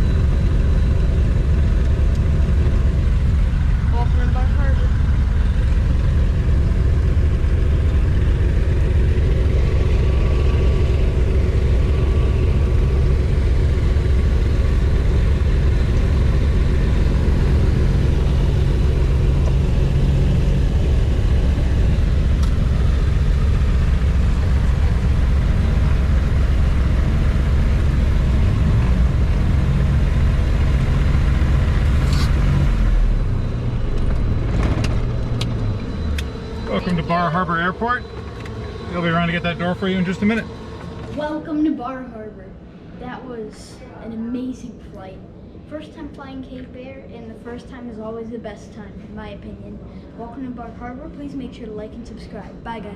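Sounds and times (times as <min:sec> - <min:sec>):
aircraft piston engines droning: 0:00.0 - 0:52.9.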